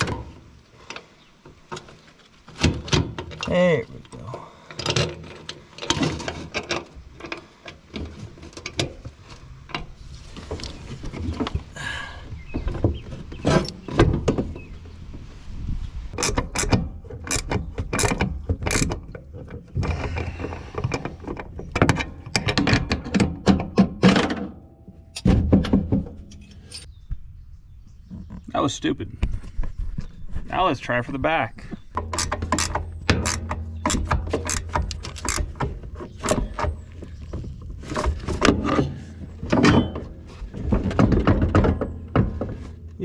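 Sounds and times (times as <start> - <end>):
hand tools clicking on metal bolt: 16.2 - 19.3, 32.0 - 36.8.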